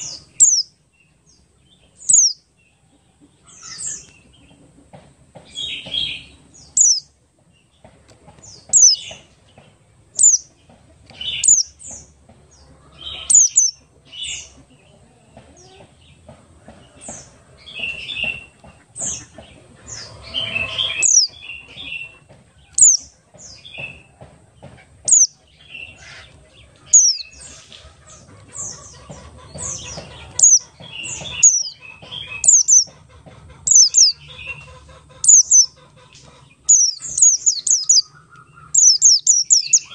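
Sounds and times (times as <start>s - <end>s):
bird chattering twitters: 0.0s - 0.7s, 2.0s - 2.4s, 5.5s - 7.1s, 8.4s - 9.3s, 10.1s - 12.1s, 13.0s - 14.5s, 17.7s - 24.0s, 25.0s - 26.3s, 26.9s - 39.9s.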